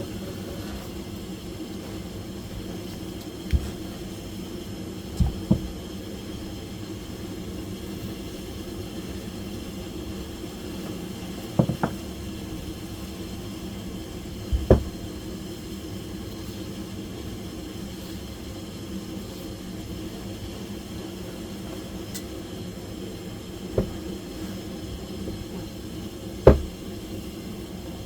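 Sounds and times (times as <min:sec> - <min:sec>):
steady low hum: 0:00.0 - 0:28.0
short knocks: 0:05.2 - 0:05.7, 0:11.6 - 0:12.0, 0:14.5 - 0:15.0, 0:23.8 - 0:24.1, 0:26.5 - 0:26.8.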